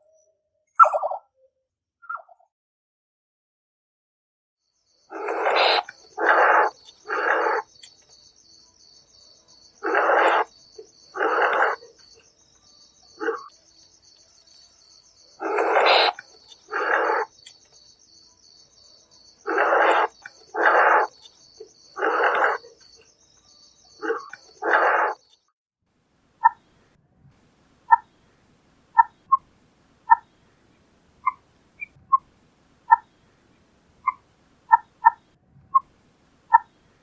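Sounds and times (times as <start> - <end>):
nightjar calling: 0.0 - 1.3, 4.9 - 17.7, 18.5 - 25.5, 26.4 - 26.8, 27.9 - 33.4, 34.0 - 35.9, 36.5 - 37.0
crickets trilling: 4.7 - 25.5.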